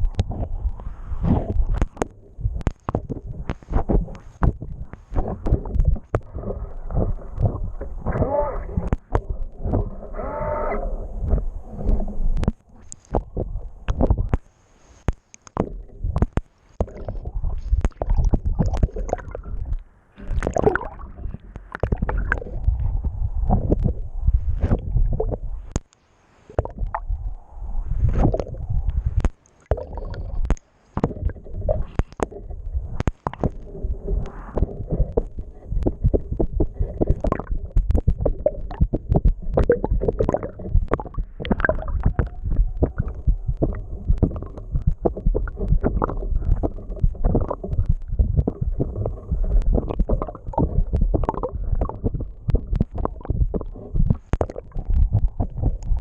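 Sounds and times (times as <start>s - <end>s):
knocks and clicks: 11.2s - 14.5s, 15.1s - 20.9s, 29.2s - 56.0s
water rushing and gurgling: 26.5s - 56.0s.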